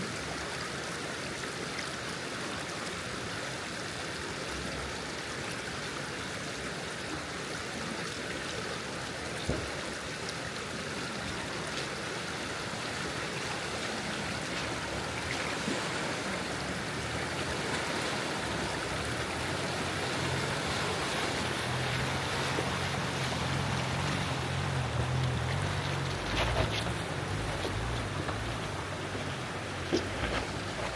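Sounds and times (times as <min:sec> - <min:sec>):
stream water rushing: 0:00.0 - 0:30.9
vehicle engine hum: 0:14.0 - 0:30.9.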